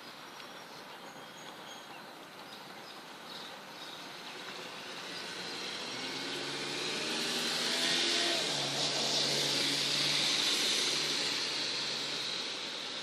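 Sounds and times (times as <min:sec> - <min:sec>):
outdoor background hiss: 0:00.0 - 0:13.0
vehicle engine hum: 0:00.2 - 0:13.0.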